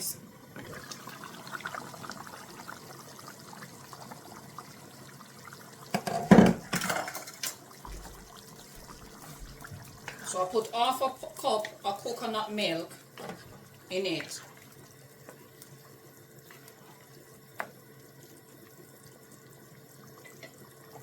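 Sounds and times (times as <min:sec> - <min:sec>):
liquid pouring into a pot: 0:00.6 - 0:12.0
loud clatters against a pot: 0:05.9 - 0:08.2.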